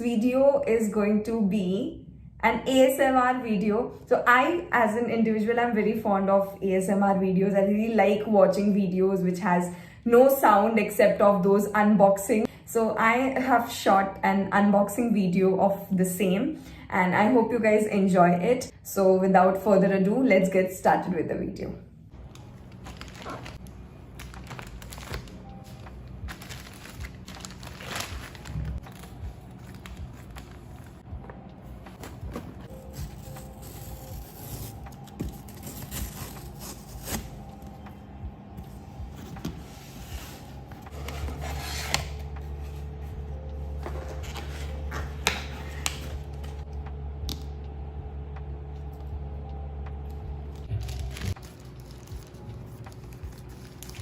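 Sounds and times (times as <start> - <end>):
faint background music: 0.0 - 54.0
steady low hum: 21.8 - 54.0
packaging handling noise: 22.2 - 31.0, 31.6 - 37.8, 43.7 - 46.6, 50.6 - 54.0
packaging crinkling: 22.3 - 31.0.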